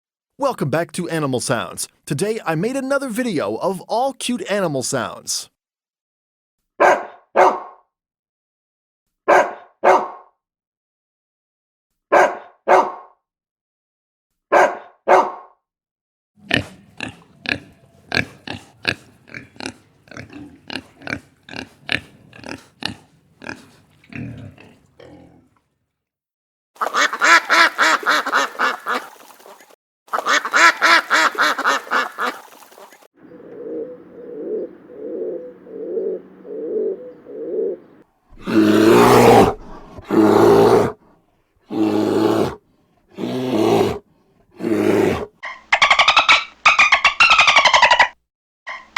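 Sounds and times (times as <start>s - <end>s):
animal calls: 16.4s - 25.6s, 26.8s - 41.0s, 41.7s - 42.6s, 44.6s - 48.9s.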